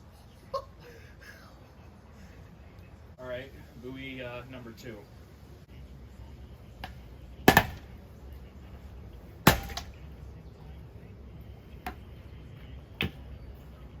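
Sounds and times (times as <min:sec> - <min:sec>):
fan blades hitting a buoy: 0:06.8 - 0:08.0, 0:09.4 - 0:10.0.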